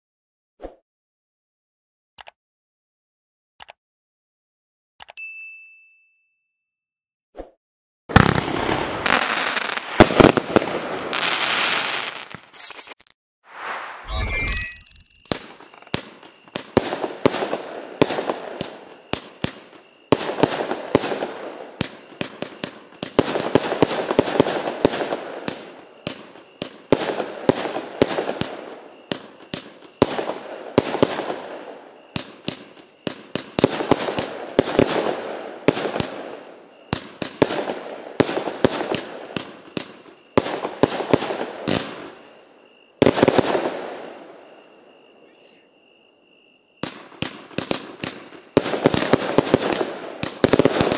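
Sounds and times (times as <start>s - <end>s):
fireworks firing rapid volleys: 8.1s - 12.6s, 15.2s - 42.4s, 43.0s - 44.2s, 46.8s - 50.9s.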